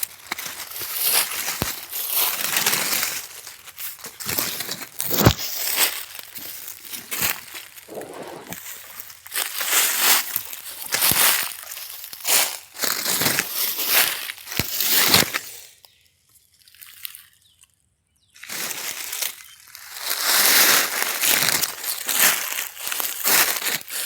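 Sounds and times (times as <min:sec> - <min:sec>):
rustling and crunching: 0:00.0 - 0:15.5.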